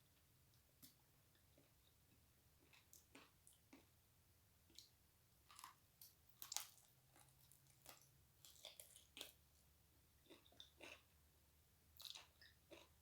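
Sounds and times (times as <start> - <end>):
person chewing and biting food: 10.3 - 11.0, 12.0 - 13.0.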